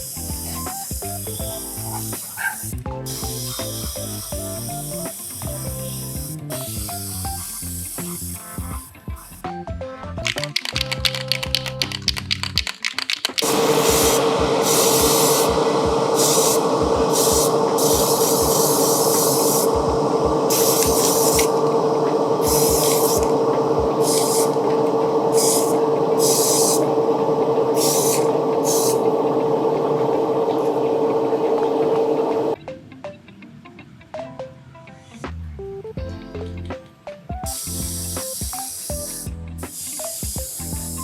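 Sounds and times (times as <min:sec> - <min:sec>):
airbrush compressor humming: 0:00.0 - 0:09.4, 0:13.4 - 0:32.6, 0:37.5 - 0:41.0
airbrush spraying hiss: 0:00.0 - 0:09.4, 0:13.4 - 0:32.5, 0:37.5 - 0:41.0.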